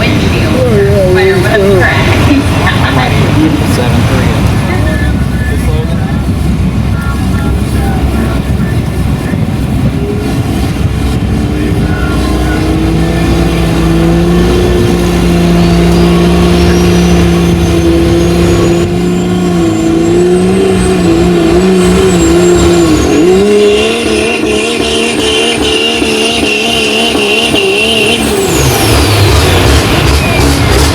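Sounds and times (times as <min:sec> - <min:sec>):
diesel engine at high revs: 0:00.0 - 0:30.9
turbo whistle: 0:15.6 - 0:30.9.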